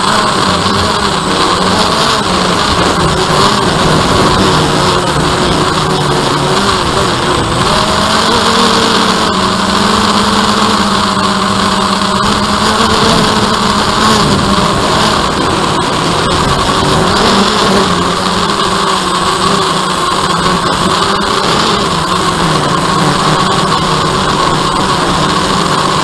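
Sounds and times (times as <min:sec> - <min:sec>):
drone propellers buzzing: 0:00.0 - 0:26.0.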